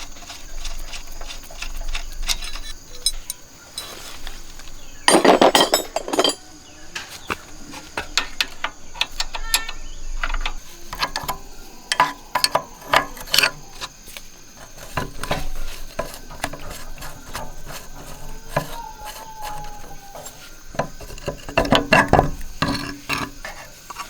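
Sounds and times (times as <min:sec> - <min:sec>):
hand tools clinking on metal: 0:00.8 - 0:04.2, 0:05.0 - 0:07.2, 0:07.8 - 0:24.0.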